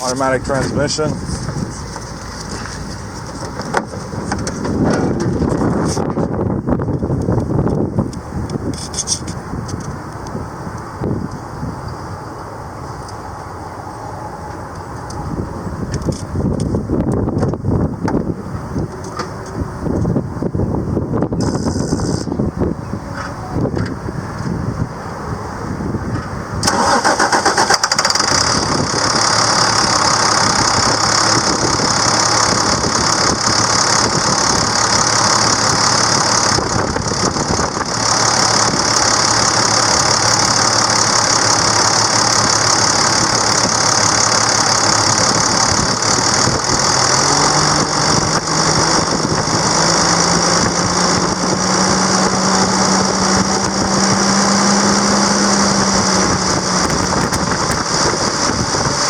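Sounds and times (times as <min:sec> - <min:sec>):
diesel engine idling: 0:00.0 - 0:59.0
rising pitched drone: 0:10.4 - 0:15.9, 0:28.2 - 0:58.9.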